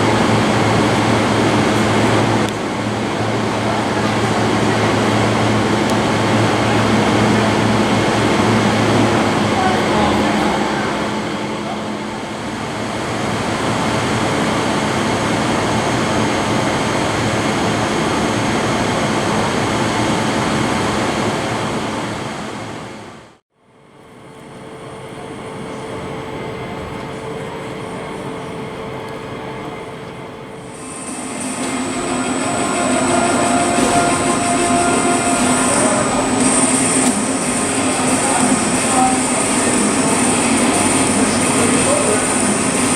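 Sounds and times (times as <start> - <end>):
dense train rumble: 0.0 - 23.4, 27.7 - 42.9
train hum: 0.0 - 42.9
high-pitched whine: 30.6 - 42.9.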